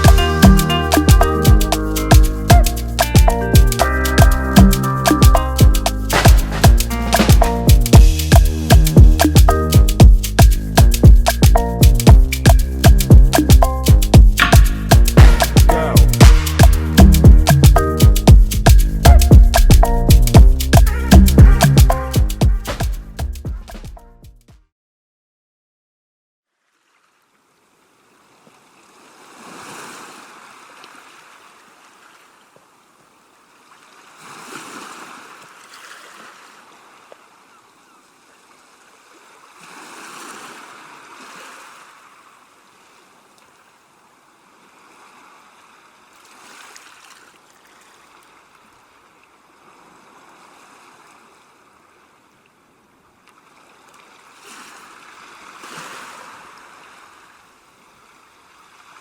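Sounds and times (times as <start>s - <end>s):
ocean surf on a beach: 6.1s - 7.5s, 27.5s - 47.2s, 48.7s - 59.0s.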